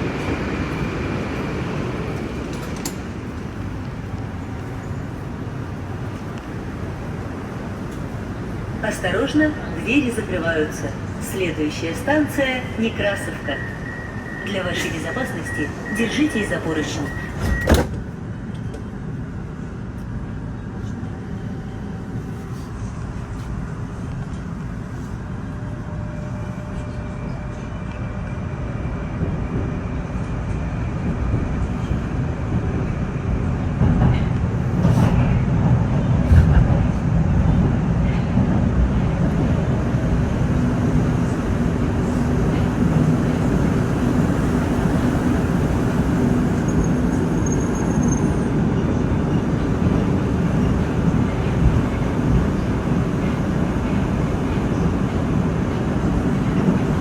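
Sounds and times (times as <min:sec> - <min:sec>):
train wheels rumbling: 0:00.0 - 0:19.6, 0:20.4 - 0:57.0.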